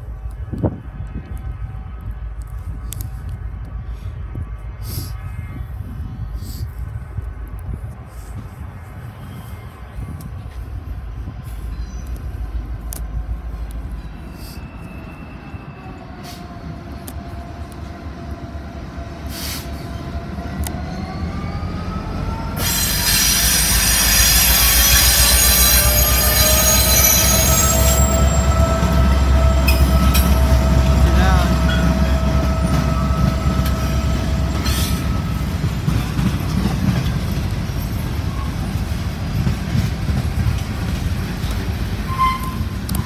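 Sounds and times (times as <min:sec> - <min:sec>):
locomotive engine rumble: 0:00.0 - 0:43.0
train rolling noise: 0:00.0 - 0:43.0
wheel squeal: 0:22.6 - 0:28.6, 0:42.1 - 0:43.0.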